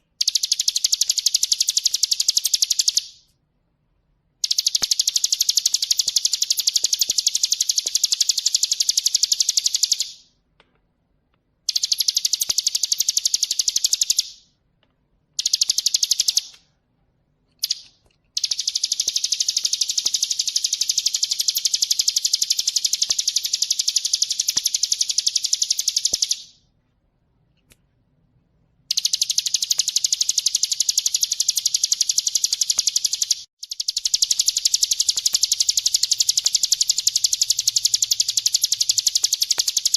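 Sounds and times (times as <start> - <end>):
bird singing rattling trill: 4.4 - 10.2, 11.7 - 14.5, 17.6 - 26.6, 28.9 - 39.9.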